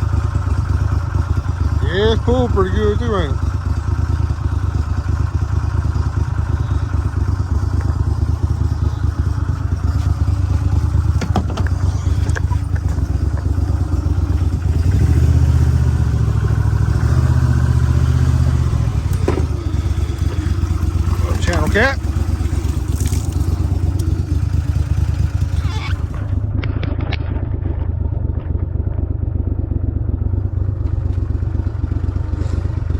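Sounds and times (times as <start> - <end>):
outboard motor running: 0.0 - 32.9
light knocks in boat: 11.2 - 13.5.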